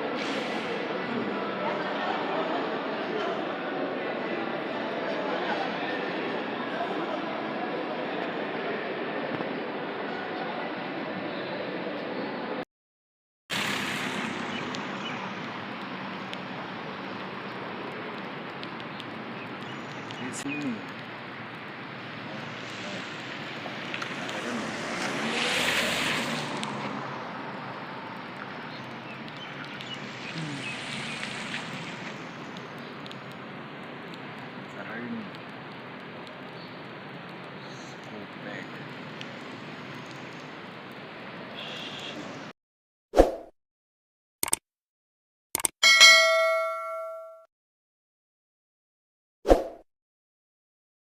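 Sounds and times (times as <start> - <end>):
vehicle passing on wet road: 0.0 - 4.4, 13.5 - 42.5
rain on wet street: 0.0 - 11.9, 13.5 - 42.5
traffic: 0.0 - 12.6, 13.5 - 42.6
short clicks: 44.4 - 44.6
bright bell-like ding: 45.8 - 47.5.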